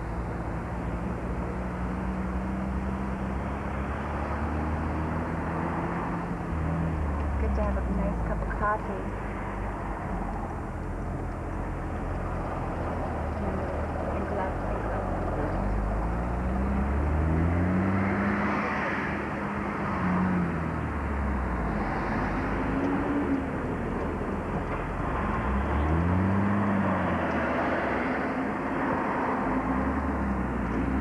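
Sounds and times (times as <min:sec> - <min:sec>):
car engine accelerating: 0:00.0 - 0:31.0
road noise: 0:00.0 - 0:31.0.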